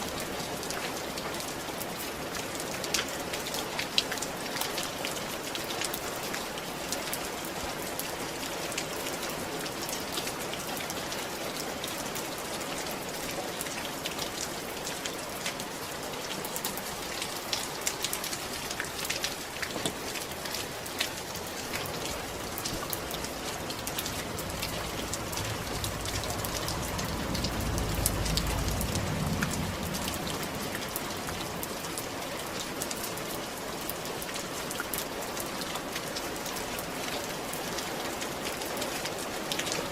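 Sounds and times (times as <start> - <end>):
rain falling on a roof: 0.0 - 39.9
low rumble: 22.2 - 31.8.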